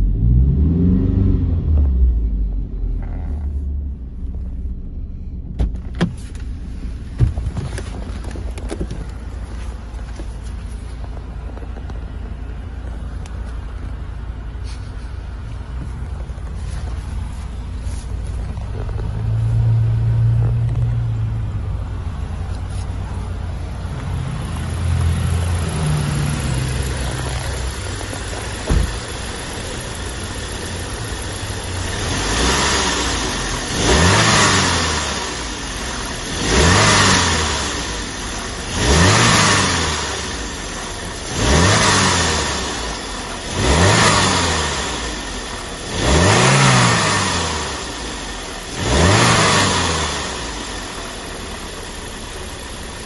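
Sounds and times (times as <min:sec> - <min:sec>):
car engine idling and revving: 0:00.0 - 0:53.0
short thump: 0:05.5 - 0:09.1, 0:28.5 - 0:29.3.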